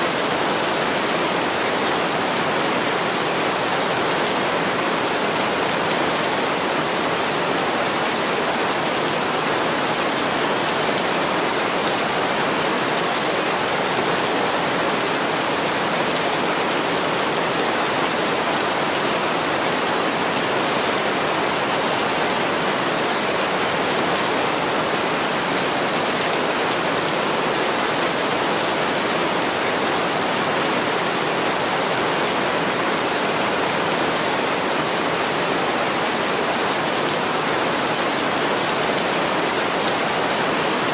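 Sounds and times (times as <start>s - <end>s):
heavy rain on a window: 0.1s - 40.9s.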